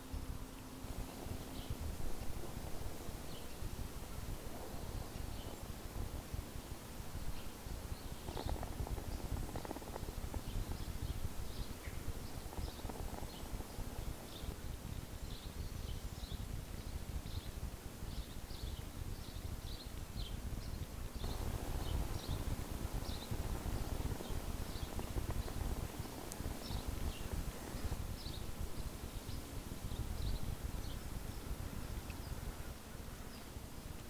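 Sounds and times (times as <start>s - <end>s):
steady low rumble: 0.0s - 6.5s, 21.2s - 30.7s
small birds chirping: 0.0s - 34.0s.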